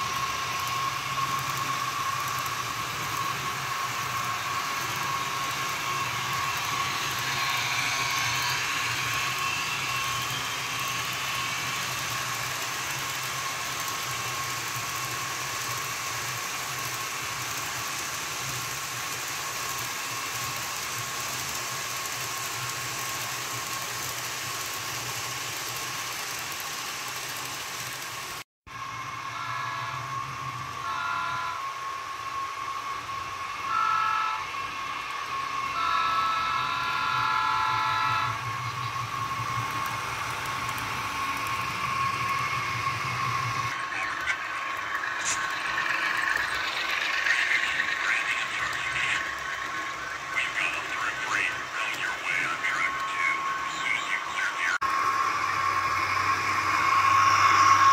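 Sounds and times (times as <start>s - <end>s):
model train whirring hum: 0.0s - 57.9s
short horn-like tones: 30.8s - 31.8s, 33.6s - 34.6s, 35.7s - 38.5s.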